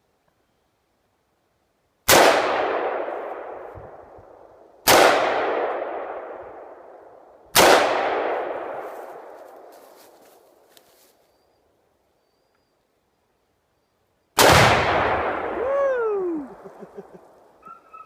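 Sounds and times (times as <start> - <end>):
explosion booms with echo: 14.4 - 15.7.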